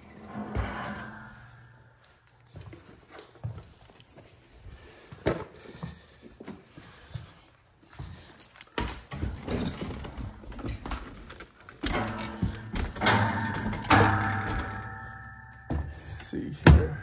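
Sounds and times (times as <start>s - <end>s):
knocks and clatters: 8.8s - 17.0s.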